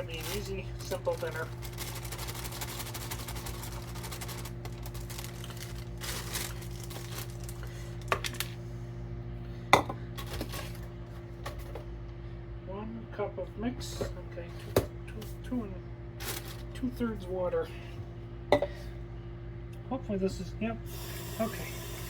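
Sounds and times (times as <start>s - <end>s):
rustling: 0.0s - 7.7s
steady electrical hum: 0.0s - 22.0s.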